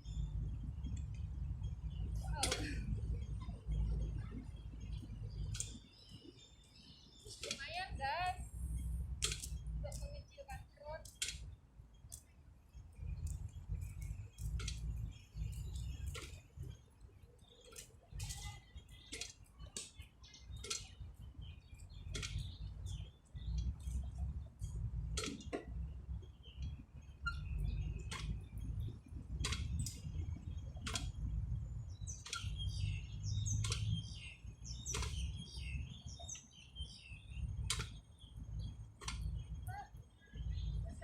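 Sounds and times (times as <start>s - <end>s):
birds chirping: 0.0s - 41.0s
low rumble: 7.9s - 10.2s.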